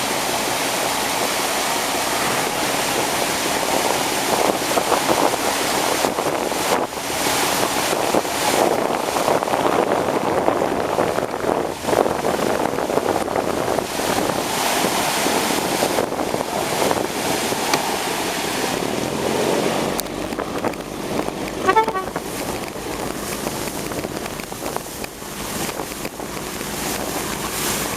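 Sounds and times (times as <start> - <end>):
rushing water: 0.0 - 27.9
wind buffeting microphone: 0.0 - 27.9
short high-pitched tone: 21.6 - 22.2.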